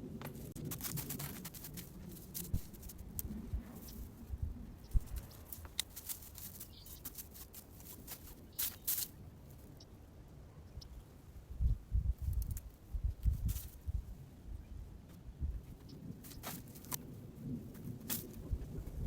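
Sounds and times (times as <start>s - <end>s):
rustling in garden bed: 0.0s - 9.7s, 12.1s - 14.2s, 15.6s - 19.0s.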